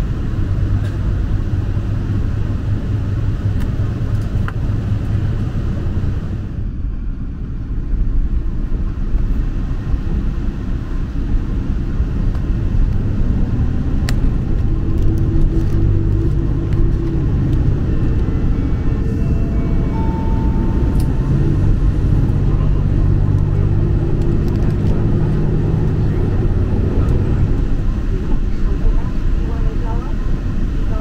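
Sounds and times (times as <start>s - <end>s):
train cabin rumble: 0.0s - 31.0s
faint rising tones: 13.2s - 24.4s.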